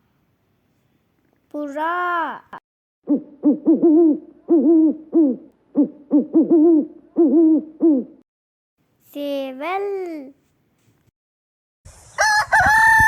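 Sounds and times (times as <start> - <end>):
pigeon cooing: 3.1 - 8.2.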